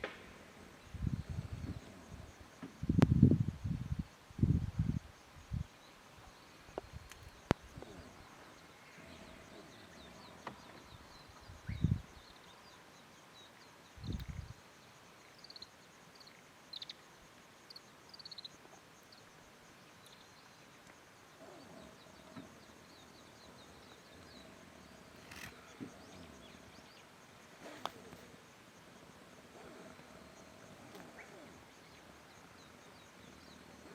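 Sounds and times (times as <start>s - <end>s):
outdoor ambience: 0.0s - 33.9s
small birds chirping: 4.5s - 17.0s, 17.7s - 28.4s.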